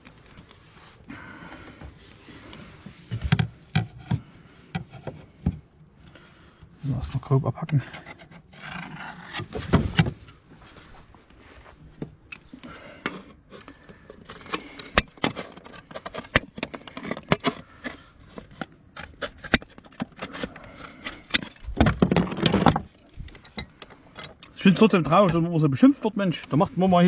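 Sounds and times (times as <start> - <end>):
scraping: 7.7 - 24.4.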